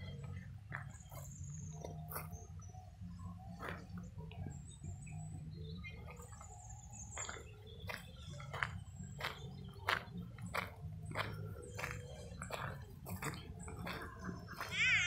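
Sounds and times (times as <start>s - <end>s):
footsteps on gravel: 0.0s - 2.4s, 6.0s - 15.0s
small birds chirping: 0.0s - 15.0s.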